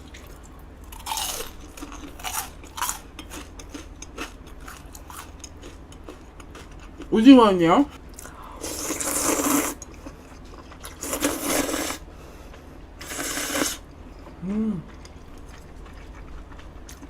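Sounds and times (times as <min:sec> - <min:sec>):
crunchy chewing: 0:00.1 - 0:07.1, 0:08.0 - 0:17.0
person humming: 0:14.4 - 0:15.0.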